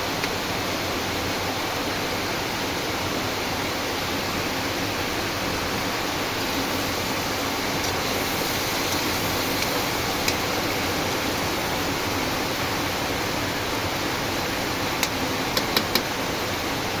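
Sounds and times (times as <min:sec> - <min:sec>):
steady rain hiss: 0:00.0 - 0:17.0
sharp ticks: 0:07.7 - 0:10.6.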